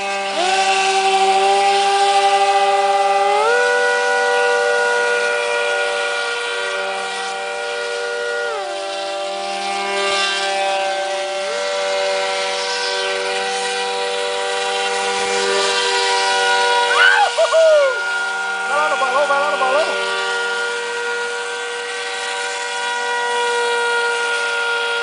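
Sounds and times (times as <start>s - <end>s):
model speedboat motors whining: 0.0s - 25.0s.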